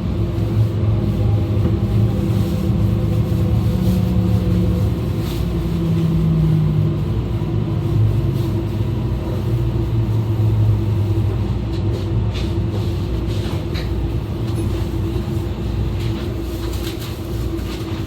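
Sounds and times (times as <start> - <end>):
train rumbling at speed: 0.0 - 18.0.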